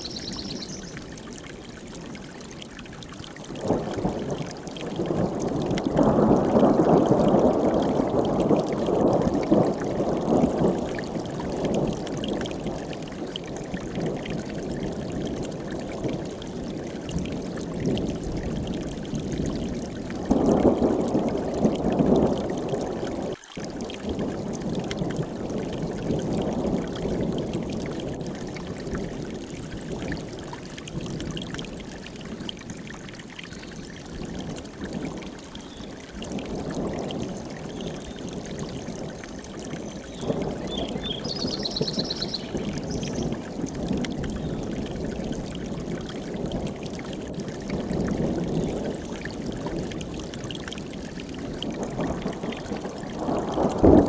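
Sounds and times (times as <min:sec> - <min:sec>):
high bird call: 0:00.0 - 0:01.0, 0:40.2 - 0:43.3
mountain stream rushing: 0:34.7 - 0:43.8.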